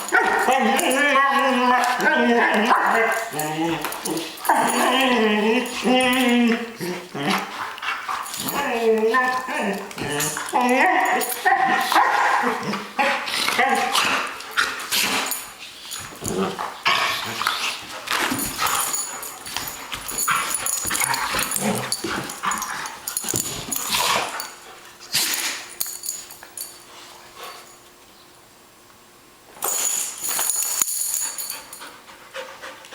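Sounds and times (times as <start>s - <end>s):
dogs growling and whimpering: 0.0s - 15.4s, 16.0s - 24.5s.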